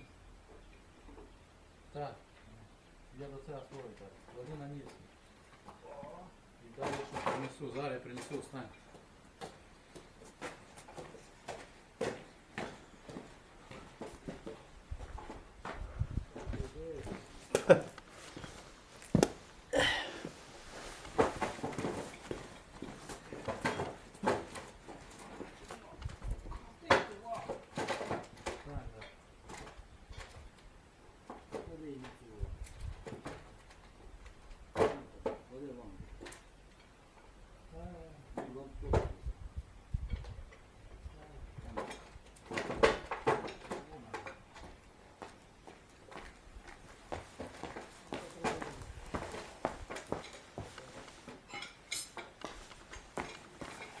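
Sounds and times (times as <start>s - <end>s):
irregular knocks and clatter: 20.8s - 30.4s, 41.6s - 54.0s.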